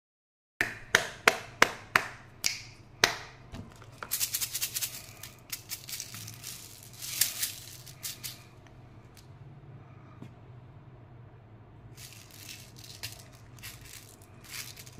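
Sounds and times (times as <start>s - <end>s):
packaging rattling and crinkling: 3.7s - 8.4s, 12.0s - 14.9s.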